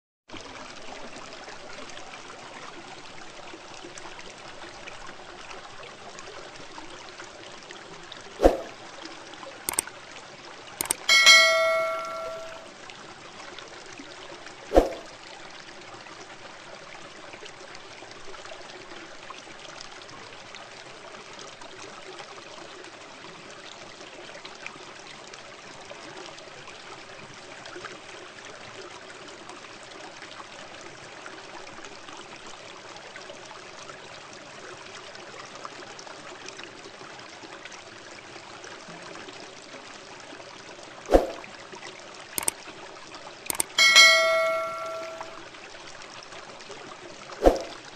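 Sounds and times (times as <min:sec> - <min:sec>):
sharp clicks: 0:10.8 - 0:12.6, 0:43.5 - 0:45.4.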